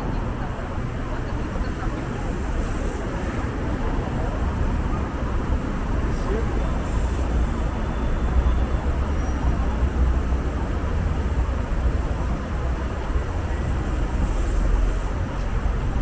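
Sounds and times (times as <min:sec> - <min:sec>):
city traffic noise: 0:00.0 - 0:16.0.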